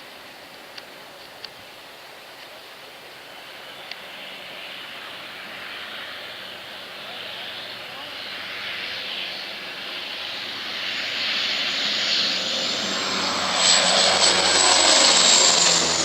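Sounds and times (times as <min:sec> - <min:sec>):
airplane engine flying low: 0:00.8 - 0:16.0
high whine: 0:11.6 - 0:16.0.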